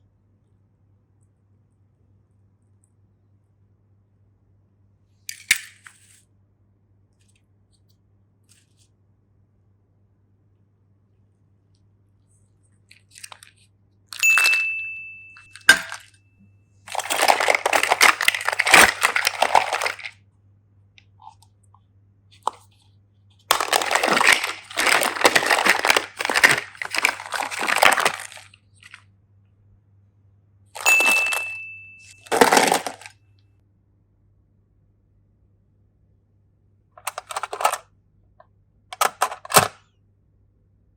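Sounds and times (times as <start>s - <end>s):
wrapper crinkling and crackling: 16.9s - 20.1s, 23.5s - 29.0s, 30.8s - 33.1s.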